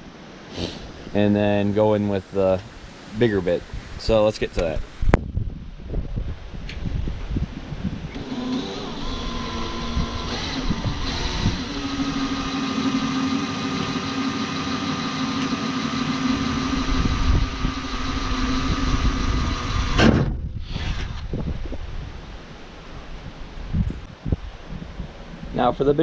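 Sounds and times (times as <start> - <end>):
electric drill drilling sheet metal: 8.2 - 21.3.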